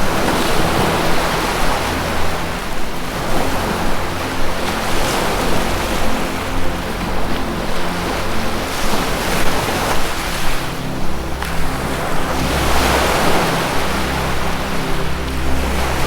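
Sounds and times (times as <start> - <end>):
low musical drone: 0.0 - 16.0
ocean surf washing in: 0.0 - 16.0.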